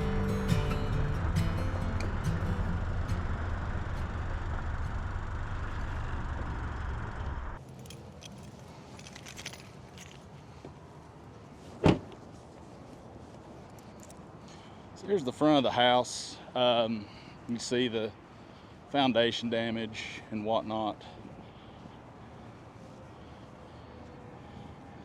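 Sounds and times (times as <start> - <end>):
vehicle engine rumble: 0.0 - 15.5
keys jingling: 7.6 - 10.4, 13.6 - 14.2
car door shutting: 11.8 - 12.2.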